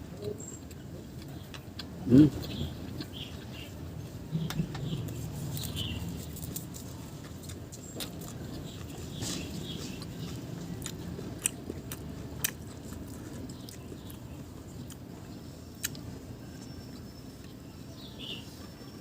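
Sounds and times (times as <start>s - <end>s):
person chewing food: 0.4s - 3.7s, 4.4s - 16.1s.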